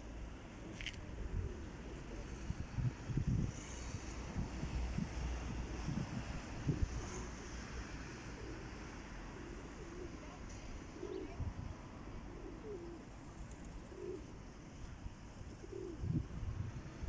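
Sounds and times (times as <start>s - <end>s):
pigeons cooing: 8.1s - 10.4s, 11.0s - 11.5s, 12.1s - 14.4s, 15.4s - 16.4s.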